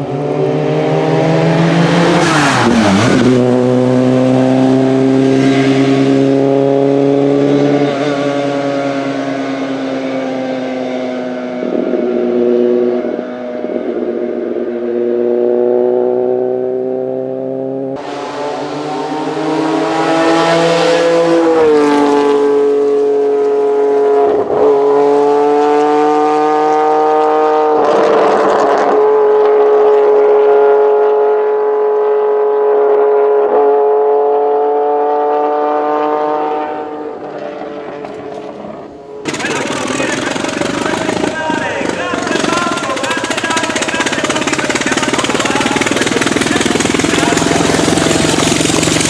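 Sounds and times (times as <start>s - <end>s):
racing car engine at high revs: 0.0s - 49.0s.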